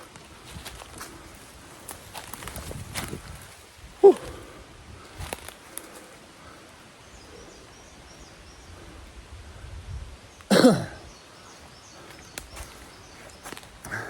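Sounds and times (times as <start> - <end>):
man coughing: 10.5 - 11.0.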